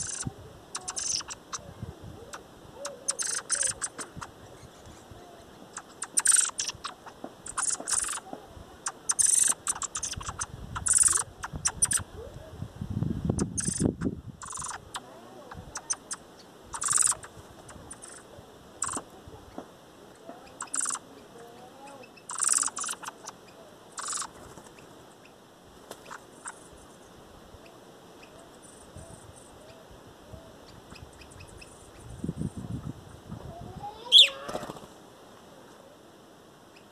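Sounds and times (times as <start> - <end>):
harsh hissing bird calls: 0.0 - 1.7, 2.3 - 12.0, 13.4 - 19.1, 20.2 - 25.4, 26.0 - 27.2, 33.9 - 34.8.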